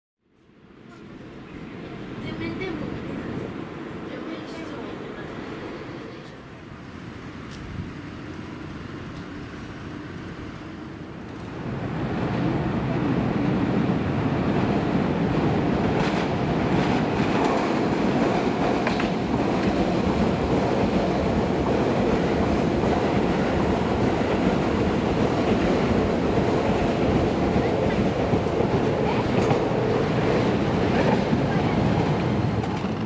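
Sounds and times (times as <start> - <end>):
electric train rumbling: 0.7 - 33.0
wheels clicking over rail joints: 24.2 - 33.0.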